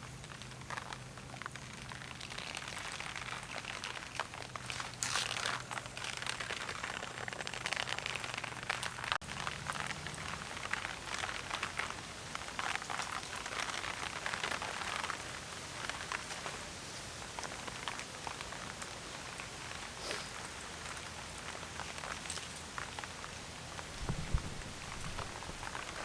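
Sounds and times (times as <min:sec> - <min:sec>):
heavy rain falling: 0:08.8 - 0:16.2, 0:22.8 - 0:26.0.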